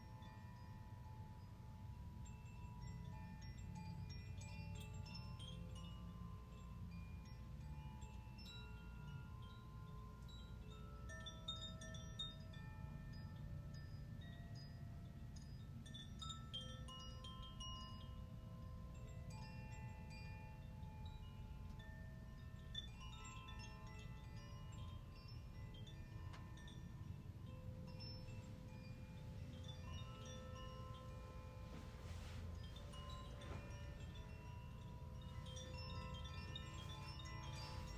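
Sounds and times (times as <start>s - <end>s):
wind chimes ringing: 0.0s - 37.9s.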